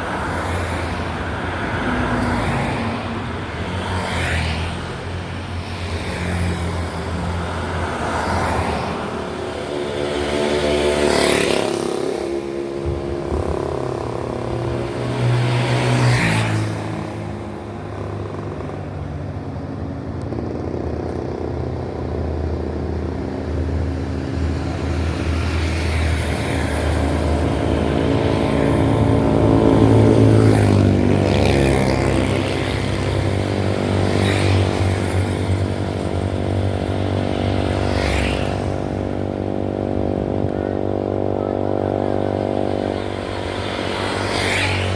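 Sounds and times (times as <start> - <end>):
vehicles passing: 0.0 - 44.9.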